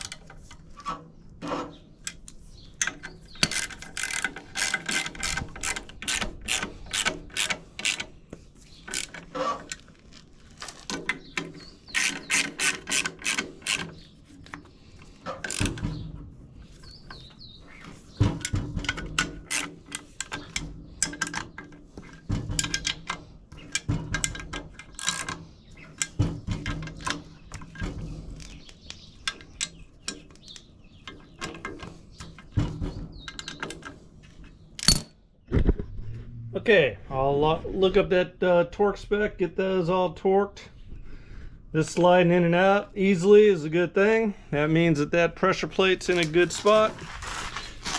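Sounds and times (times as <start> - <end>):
ratchet wrench clicking: 11.9 - 13.9.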